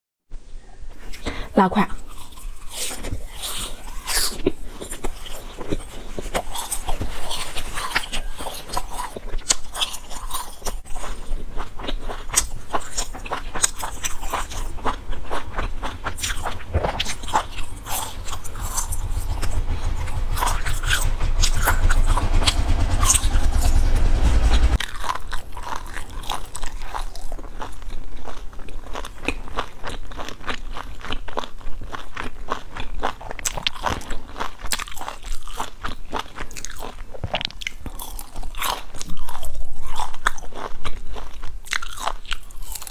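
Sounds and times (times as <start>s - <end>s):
biting and chewing: 1.9s - 42.9s
low rumble: 12.2s - 27.0s.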